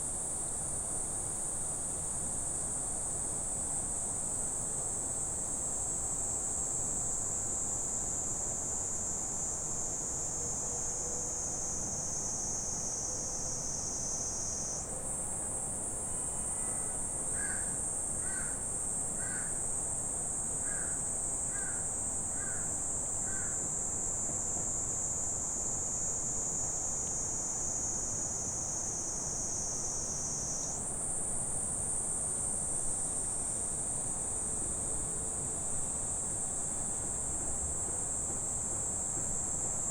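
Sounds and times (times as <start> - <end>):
insects buzzing: 26.7 - 31.1.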